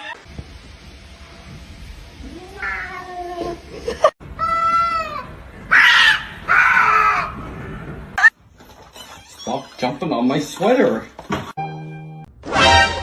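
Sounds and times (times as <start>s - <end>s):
cat meowing: 2.2s - 3.6s.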